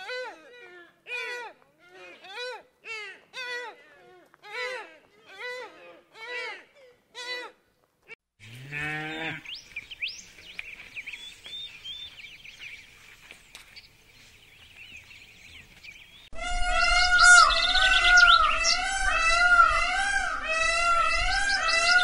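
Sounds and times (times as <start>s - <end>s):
warbling birdsong chorus: 9.0s - 22.0s.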